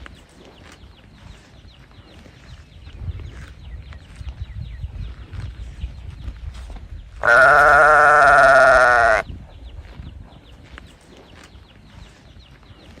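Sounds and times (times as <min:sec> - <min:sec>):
quiet farmyard background: 0:00.0 - 0:13.0
calf bawling: 0:07.2 - 0:09.2.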